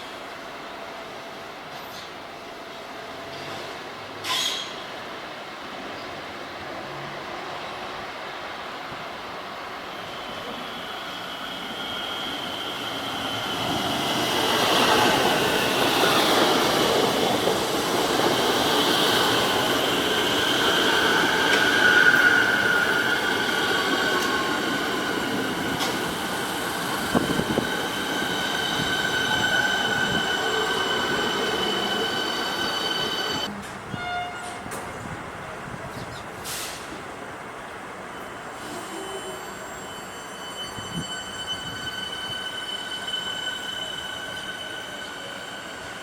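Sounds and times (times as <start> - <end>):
train rumbling past: 0.0 - 46.0
high-pitched wheel squeal: 19.9 - 24.7, 38.7 - 46.0.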